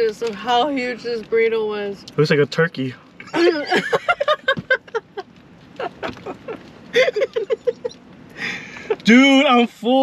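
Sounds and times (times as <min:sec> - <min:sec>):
people laughing: 0:03.4 - 0:05.2, 0:05.8 - 0:08.0.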